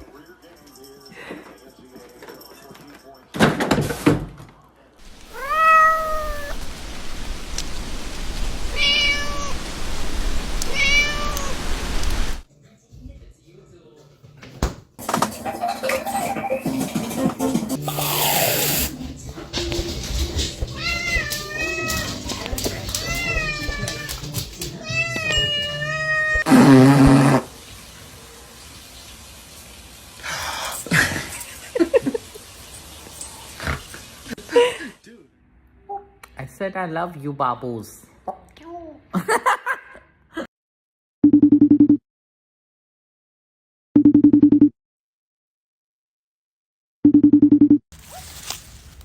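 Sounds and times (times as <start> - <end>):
steady hiss: 5.0 - 12.4
cat meowing: 5.2 - 6.6, 8.7 - 9.7, 10.6 - 11.8, 20.7 - 26.5
harsh low-pitched cat cry: 5.3 - 6.6.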